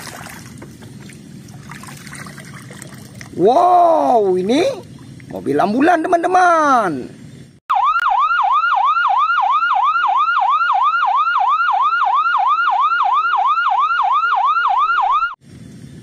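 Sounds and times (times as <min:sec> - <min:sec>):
ambulance siren yelping: 0:07.7 - 0:15.4.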